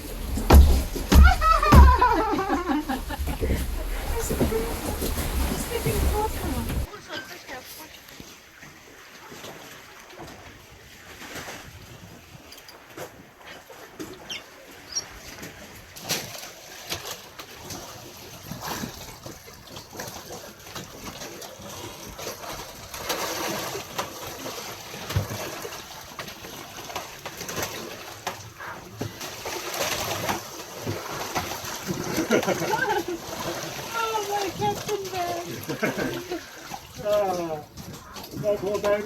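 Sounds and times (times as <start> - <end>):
sea water splashing around boat: 0.0 - 39.0
knocks and clicks: 0.1 - 3.7.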